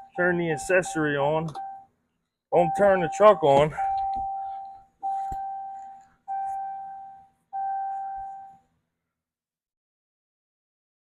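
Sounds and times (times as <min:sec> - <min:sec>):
dashboard warning chime dings: 0:00.0 - 0:01.9, 0:02.6 - 0:08.6.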